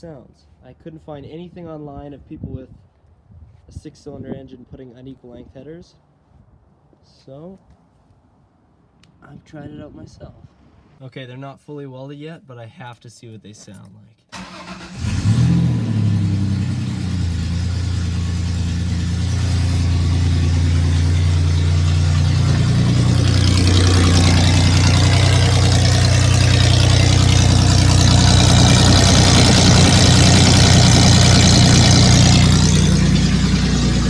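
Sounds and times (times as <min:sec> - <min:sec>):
straight-piped engine idling: 0:14.4 - 0:34.0.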